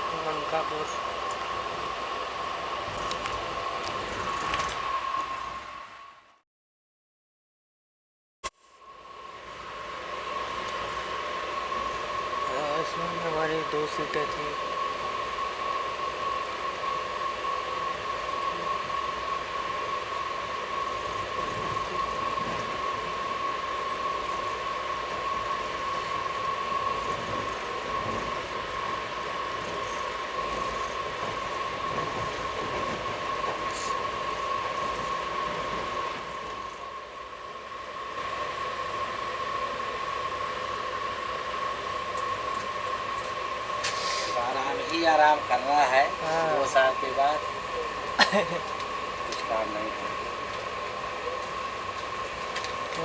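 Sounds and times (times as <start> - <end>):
constant high whine: 0.0 - 6.4, 8.5 - 53.0
steady hiss in train coach: 0.0 - 6.4, 8.5 - 53.0.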